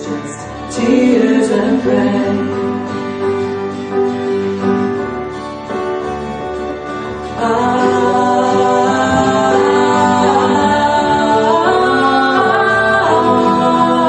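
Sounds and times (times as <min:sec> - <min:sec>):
voices singing held notes: 0:00.0 - 0:03.0, 0:07.3 - 0:14.0
piano accompaniment: 0:00.0 - 0:14.0.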